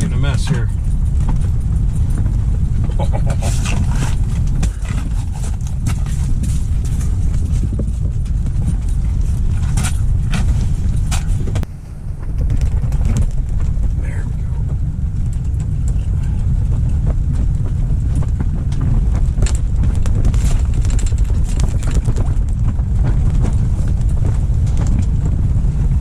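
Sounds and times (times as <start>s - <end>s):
gear handling clicks and knocks: 0.0s - 11.7s, 16.8s - 25.4s
wind buffeting microphone: 0.0s - 26.0s.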